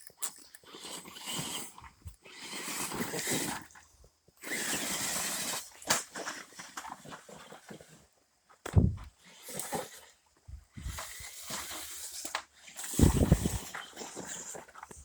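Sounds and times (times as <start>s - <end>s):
electric motor of toy truck: 0.5s - 3.8s, 4.4s - 6.8s, 9.2s - 14.9s.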